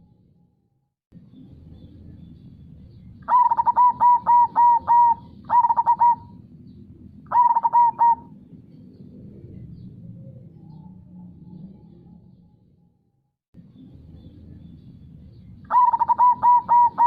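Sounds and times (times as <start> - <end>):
dove cooing: 3.2 - 6.4, 7.3 - 8.4, 15.7 - 17.0.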